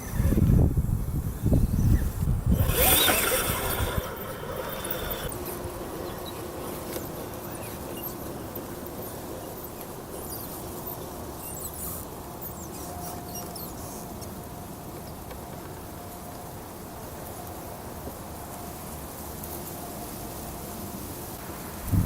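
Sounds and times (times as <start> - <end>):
small electric motor whining: 0.0 - 14.3
steady hiss: 0.0 - 22.0
high squeaks and chirps: 1.4 - 14.2.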